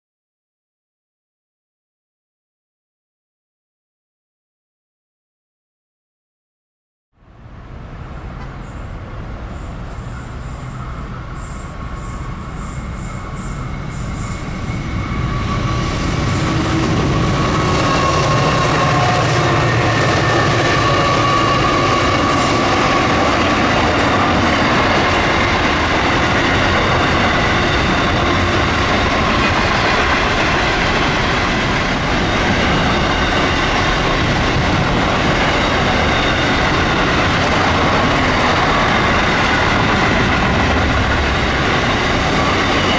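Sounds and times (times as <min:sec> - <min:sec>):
diesel locomotives passing: 0:07.2 - 0:42.9
train wagons rumbling and clattering: 0:07.5 - 0:42.9
faint wheel squeal: 0:08.2 - 0:16.9, 0:35.2 - 0:37.4.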